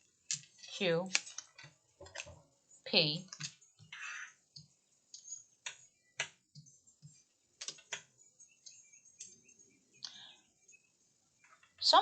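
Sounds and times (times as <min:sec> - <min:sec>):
letter pieces clicking and tapping: 0:03.3 - 0:09.4.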